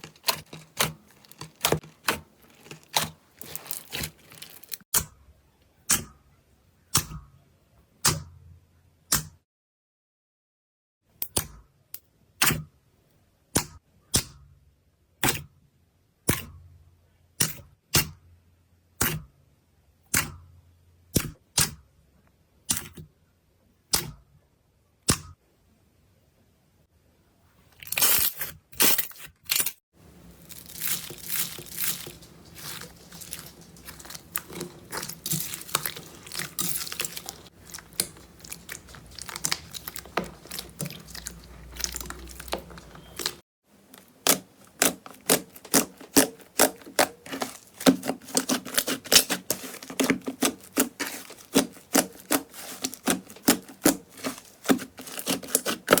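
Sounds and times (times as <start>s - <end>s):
slime squishing and crackling: 0.0s - 4.9s, 27.8s - 56.0s
sticky slime pops: 44.0s - 56.0s.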